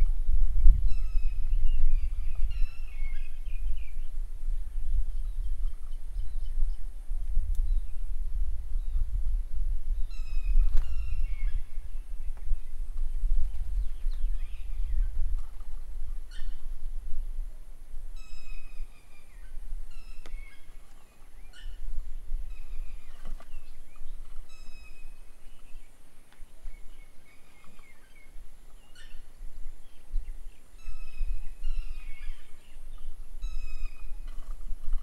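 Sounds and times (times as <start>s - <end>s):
low gusting rumble: 0.0s - 27.2s
songbirds calling: 0.0s - 35.0s.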